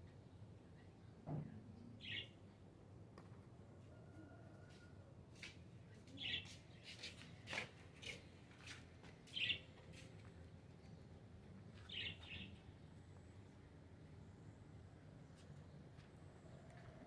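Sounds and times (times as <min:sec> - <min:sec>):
small birds chirping: 0:02.0 - 0:02.4, 0:05.9 - 0:13.1.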